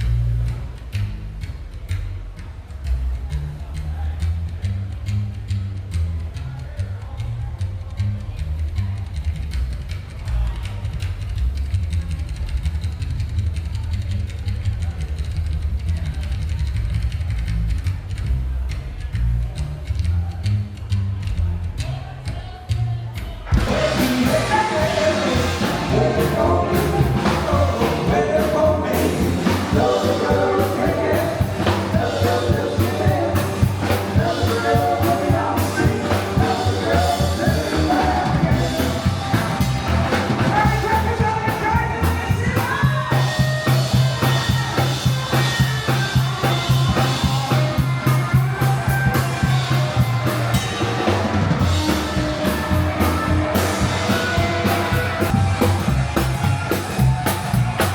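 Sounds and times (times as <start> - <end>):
rock and roll band music: 23.5 - 57.9.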